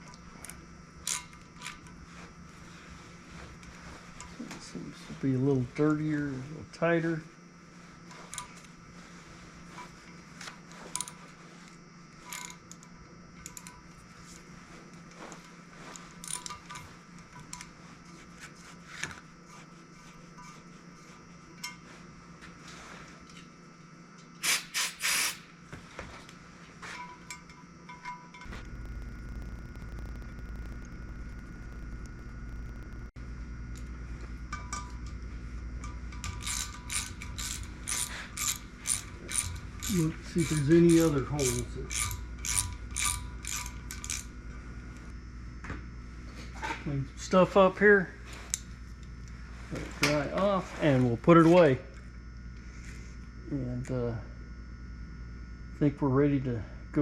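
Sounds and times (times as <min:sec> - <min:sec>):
low steady hum: 0:25.4 - 0:57.0
steel tools clinking: 0:35.8 - 0:44.2
ratchet clicking: 0:36.2 - 0:44.3.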